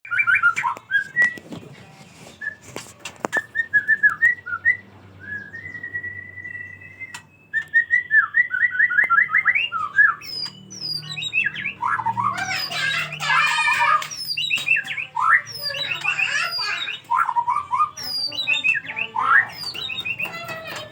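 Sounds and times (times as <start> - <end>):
songbird singing: 0.1 - 1.5, 2.3 - 20.9
sharp clicks: 7.0 - 7.8, 12.2 - 17.2.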